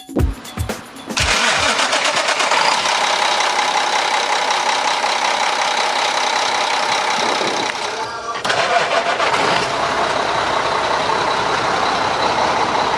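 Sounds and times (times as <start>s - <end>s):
truck diesel engine running: 0.4s - 12.9s.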